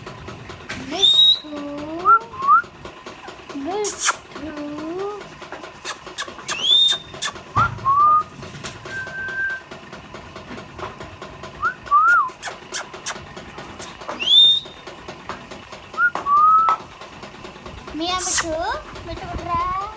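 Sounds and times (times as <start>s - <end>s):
parakeet whistling calls: 5.8s - 8.3s, 14.2s - 14.8s, 18.2s - 18.5s.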